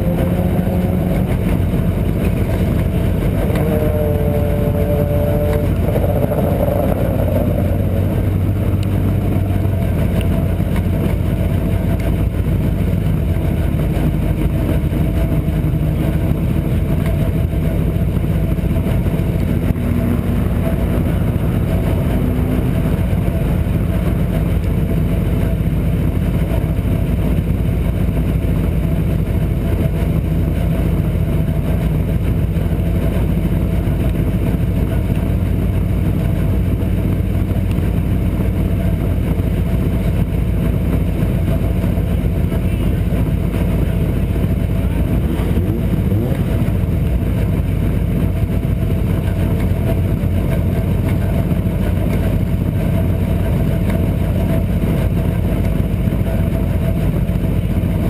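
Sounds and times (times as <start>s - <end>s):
race car engines idling: 0.0s - 58.0s.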